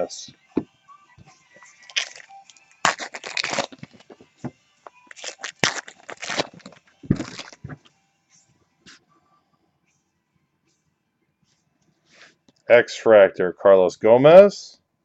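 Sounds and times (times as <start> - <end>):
foil packs tearing and crinkling: 1.8 - 4.1, 5.1 - 7.6.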